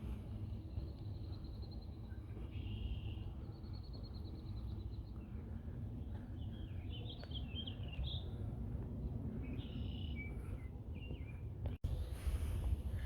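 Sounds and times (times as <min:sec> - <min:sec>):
small birds chirping: 0:00.6 - 0:08.4, 0:09.4 - 0:11.5
steady low rumble: 0:08.0 - 0:13.0.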